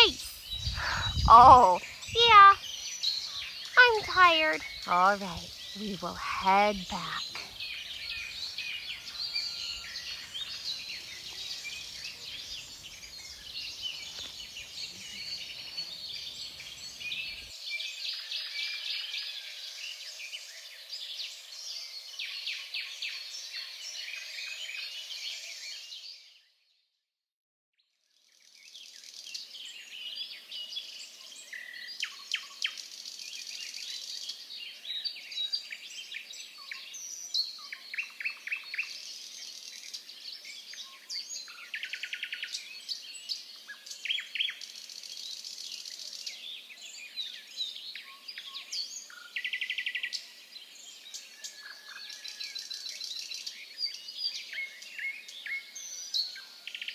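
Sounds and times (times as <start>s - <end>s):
forest bird chorus: 0.0s - 5.8s, 7.2s - 26.2s.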